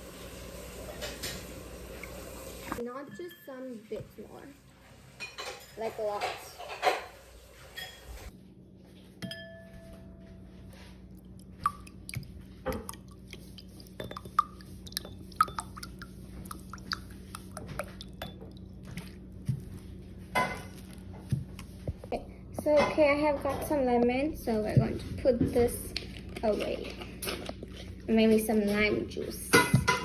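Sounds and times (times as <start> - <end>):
bowl and utensils clinking: 5.2 - 8.3, 13.9 - 21.0, 22.6 - 30.0
liquid dripping: 11.1 - 19.8.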